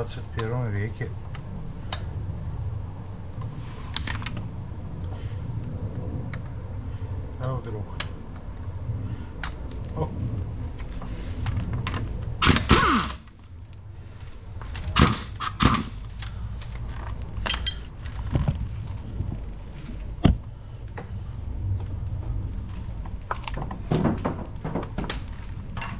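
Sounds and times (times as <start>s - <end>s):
metal tools clanking on wheel hub: 17.4s - 18.3s.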